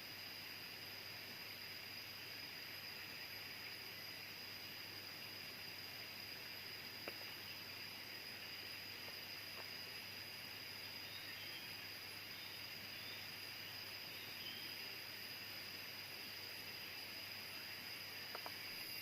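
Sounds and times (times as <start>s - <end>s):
even hiss: 0.0s - 19.0s
high-pitched insect drone: 0.0s - 19.0s
faint click: 18.3s - 18.6s.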